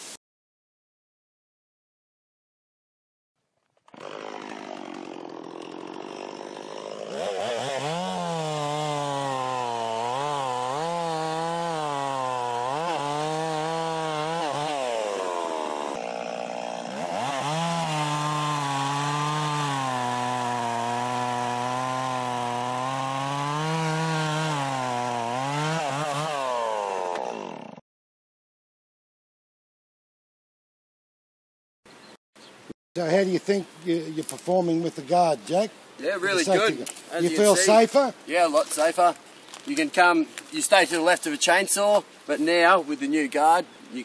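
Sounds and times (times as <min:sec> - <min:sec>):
chainsaw cutting into tree: 0:03.6 - 0:27.8, 0:36.2 - 0:37.9.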